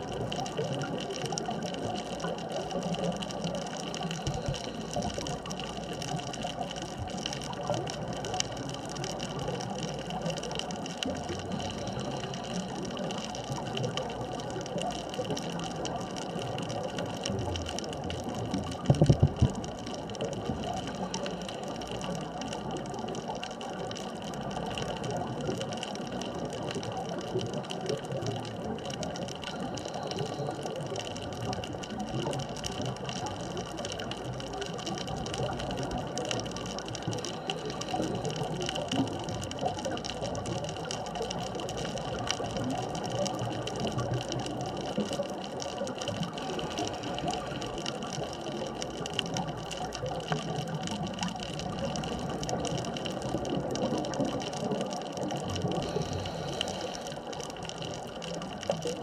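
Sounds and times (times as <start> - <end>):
underwater watery hiss: 35.2 - 39.0, 45.8 - 48.7, 55.6 - 58.5.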